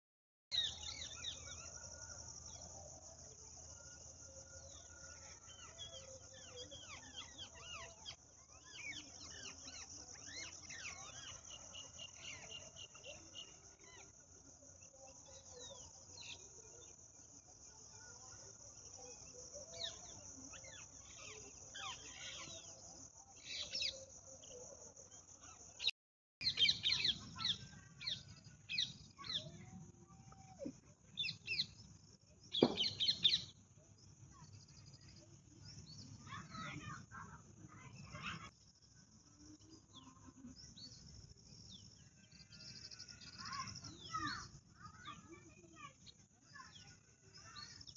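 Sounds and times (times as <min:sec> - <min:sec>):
crickets droning: 0:00.6 - 0:47.9
birds chirping: 0:32.5 - 0:33.5.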